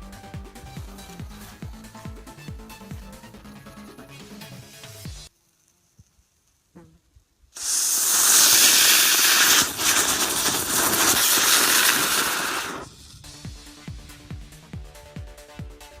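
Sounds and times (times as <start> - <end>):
firework spraying sparks hissing: 7.6 - 13.8.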